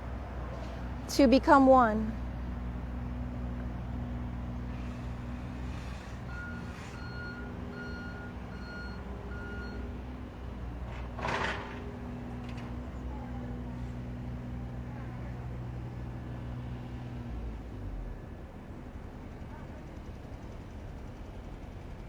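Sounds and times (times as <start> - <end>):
engine low hum: 0.0 - 22.0
reversing alarm beeping: 6.3 - 9.9.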